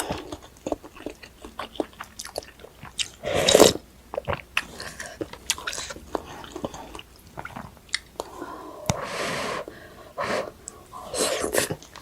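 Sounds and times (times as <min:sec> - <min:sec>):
chewing and biting food: 0:00.0 - 0:08.3.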